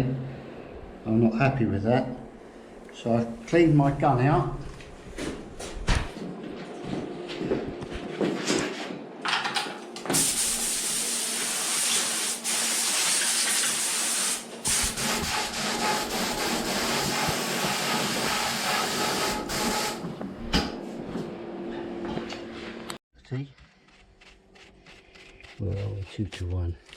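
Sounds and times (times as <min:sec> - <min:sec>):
spray gun air hissing: 0:10.1 - 0:20.0.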